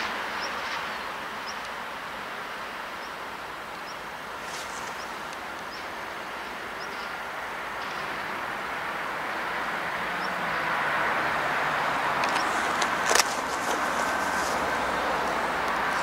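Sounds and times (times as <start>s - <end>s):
diesel train running past: 7.6s - 16.0s.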